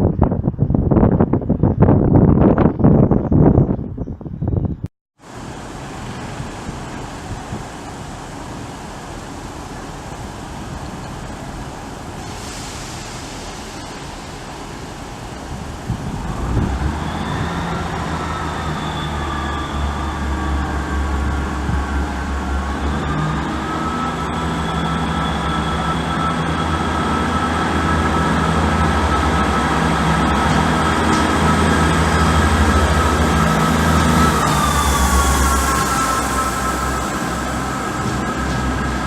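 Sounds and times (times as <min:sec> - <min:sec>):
train engine rumble: 0:00.0 - 0:39.0
high whining tones: 0:13.5 - 0:39.0.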